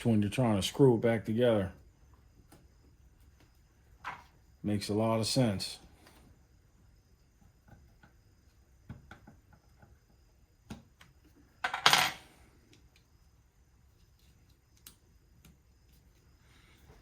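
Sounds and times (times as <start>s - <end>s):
light clicks and taps of parts: 12.7s - 13.1s, 14.0s - 16.1s.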